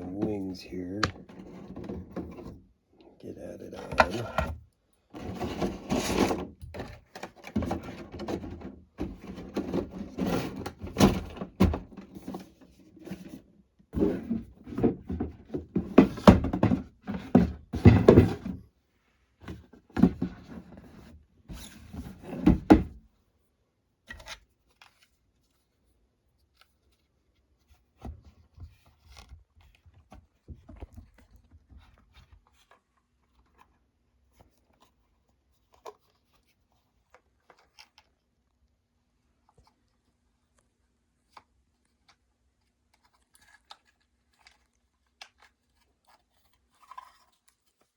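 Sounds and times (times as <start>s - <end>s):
plastic parts knocking and clicking: 1.0s - 2.6s, 5.2s - 13.4s, 14.0s - 18.6s.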